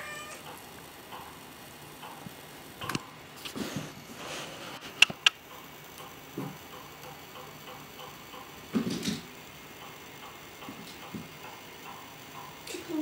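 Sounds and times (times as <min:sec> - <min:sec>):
faint steady ticking: 0:00.0 - 0:13.0
sharp clicks: 0:00.3 - 0:03.6, 0:04.9 - 0:12.8.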